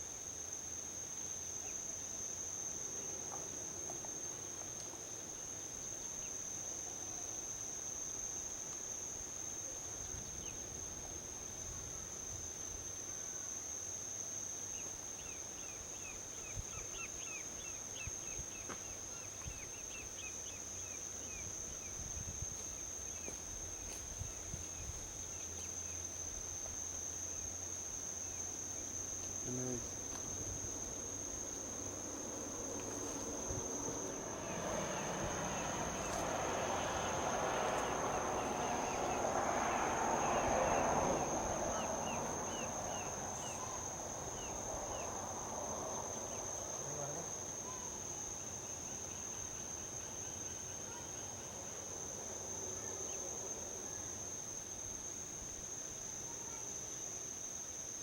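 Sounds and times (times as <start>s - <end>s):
insects droning: 0.0s - 58.0s
distant highway traffic rumble: 26.8s - 48.2s.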